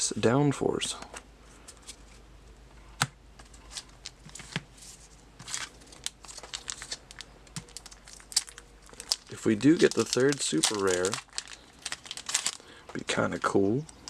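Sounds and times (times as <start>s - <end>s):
plastic pack crinkling and tearing: 5.4s - 14.0s.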